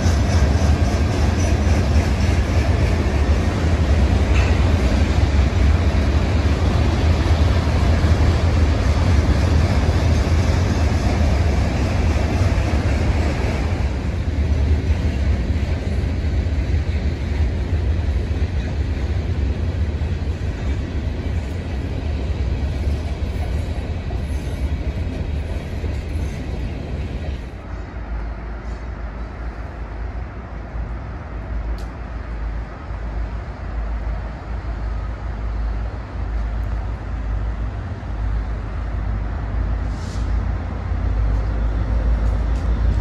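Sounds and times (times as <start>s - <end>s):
freight train rumbling past: 0.0s - 43.0s.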